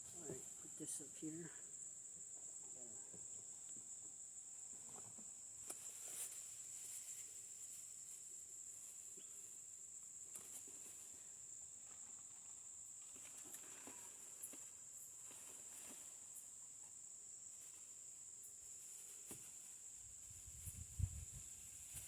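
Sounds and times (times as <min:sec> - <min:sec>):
insects trilling: 0:00.0 - 0:22.0
faint clicks and rustles: 0:10.2 - 0:16.6.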